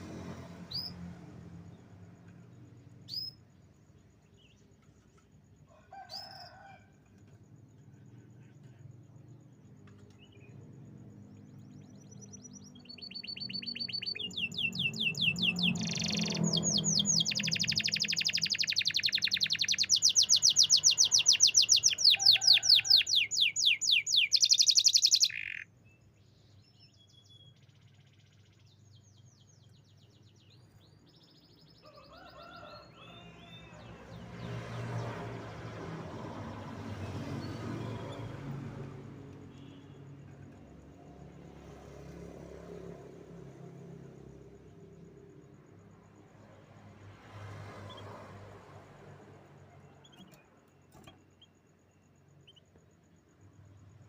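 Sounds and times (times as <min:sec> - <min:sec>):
canary singing trills: 0:00.6 - 0:03.6, 0:09.7 - 0:34.6, 0:35.3 - 0:40.8, 0:49.4 - 0:53.0
soft bird chirps: 0:07.4 - 0:34.9, 0:36.8 - 0:40.8, 0:49.5 - 0:54.0.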